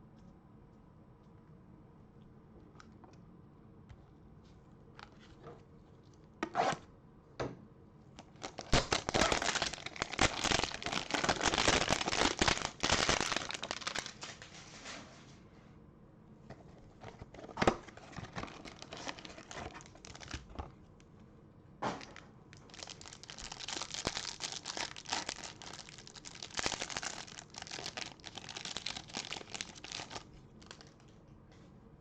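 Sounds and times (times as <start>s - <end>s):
plastic wrapping crinkling and tearing: 8.2s - 14.6s, 17.0s - 20.6s, 22.0s - 31.1s.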